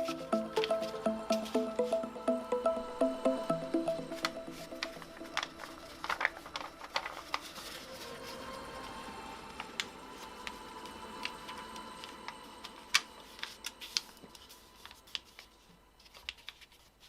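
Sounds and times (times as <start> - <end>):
paper being folded and creased: 4.2 - 8.6, 12.7 - 17.0.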